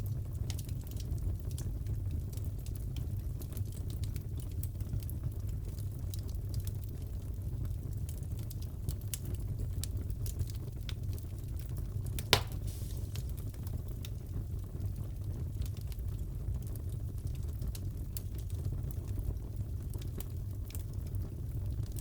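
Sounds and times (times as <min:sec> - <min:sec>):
wood fire crackling: 0:00.0 - 0:22.0
loud pop from fire: 0:12.2 - 0:13.7.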